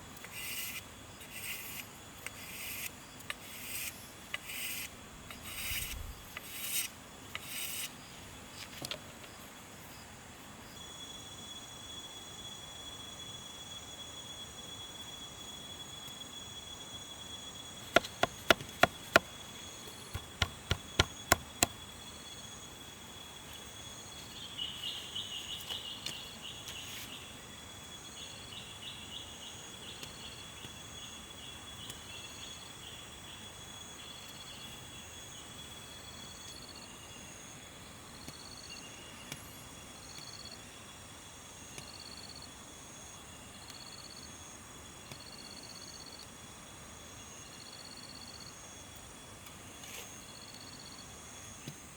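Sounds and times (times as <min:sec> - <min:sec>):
insects chirping and trilling: 0:00.0 - 0:51.9
sharp knocks: 0:17.9 - 0:19.3, 0:20.1 - 0:21.7.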